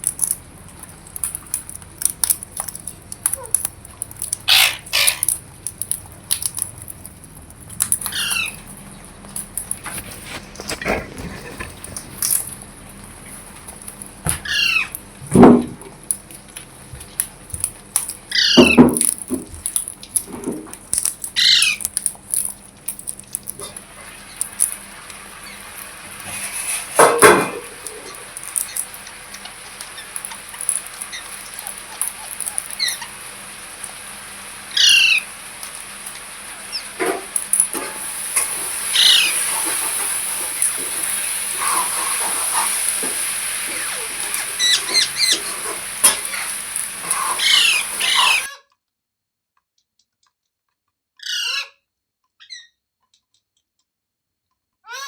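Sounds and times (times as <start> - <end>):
parrot squawking and chirping: 2.1 - 6.6, 7.9 - 8.8, 14.3 - 15.0, 18.0 - 19.8, 21.0 - 22.5, 23.4 - 48.6, 51.2 - 51.8, 52.4 - 52.8.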